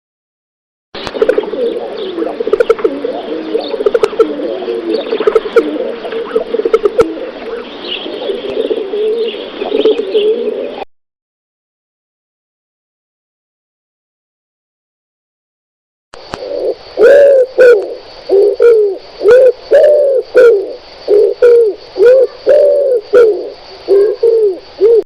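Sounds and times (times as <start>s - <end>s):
low wavering bird calls: 1.0s - 10.9s, 16.3s - 25.0s.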